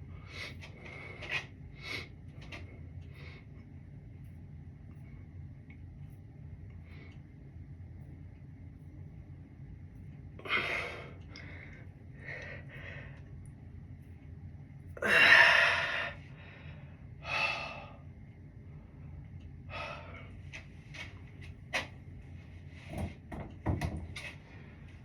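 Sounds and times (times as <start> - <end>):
person breathing hard: 10.4 - 13.3, 15.0 - 18.1, 19.7 - 20.4.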